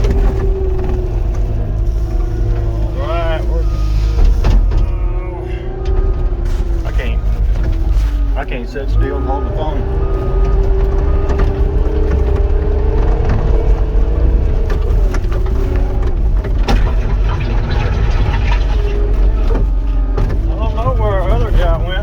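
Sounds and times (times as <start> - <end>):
diesel engine drone: 0.0 - 22.0
engine whine: 0.0 - 22.0
machine knocks and rattles: 10.3 - 21.6.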